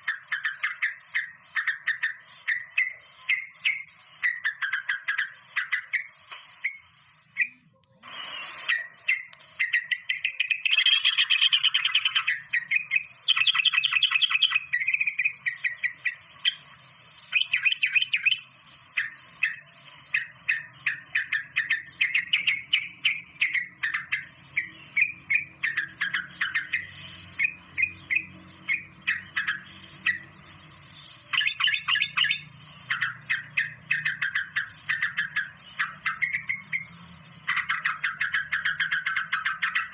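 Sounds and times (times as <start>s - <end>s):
birds chirping: 0.0s - 39.9s
buzzy rattling bird trills: 0.0s - 39.9s.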